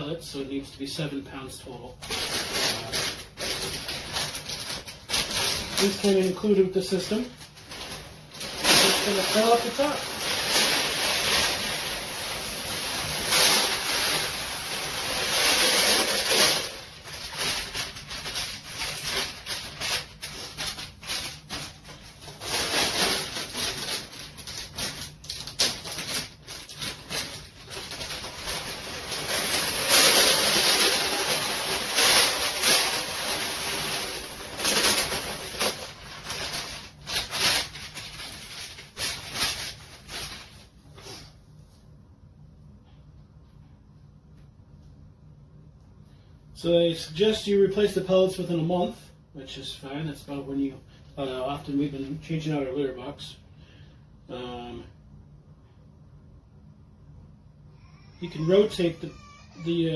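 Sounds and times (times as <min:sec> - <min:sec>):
litter pellets pouring: 0:08.6 - 0:16.8, 0:28.2 - 0:35.8.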